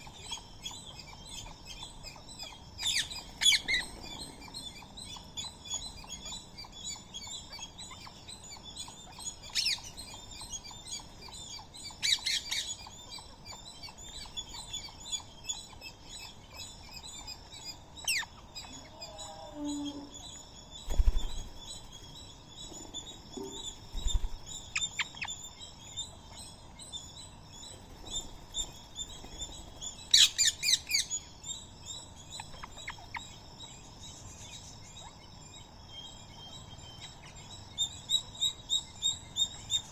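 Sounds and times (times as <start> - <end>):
birds chirping chorus: 0.0 - 39.9
sharp bird calls: 0.0 - 39.9.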